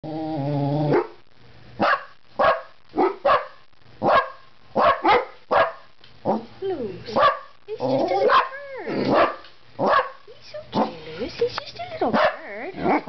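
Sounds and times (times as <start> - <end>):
dogs barking sharply: 1.8 - 5.9, 7.2 - 7.5, 8.2 - 10.2, 12.1 - 13.0.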